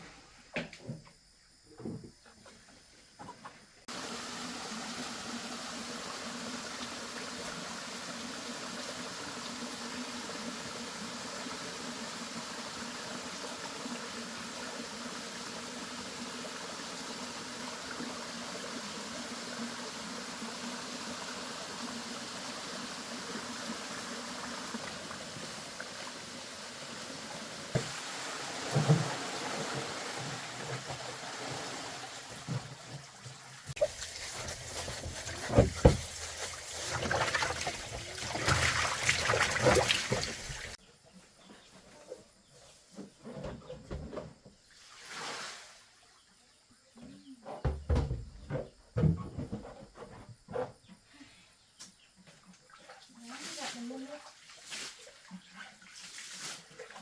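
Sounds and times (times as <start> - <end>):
flowing water rushing: 3.9 - 40.8.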